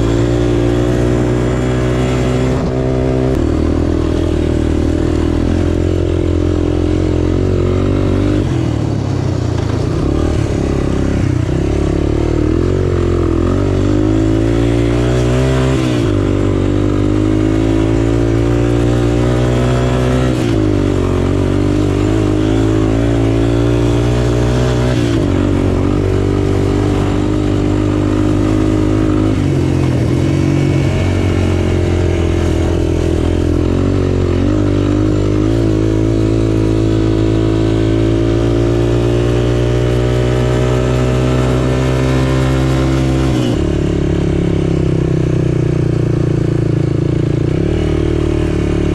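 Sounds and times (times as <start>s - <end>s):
small engine revving: 0.0s - 45.1s.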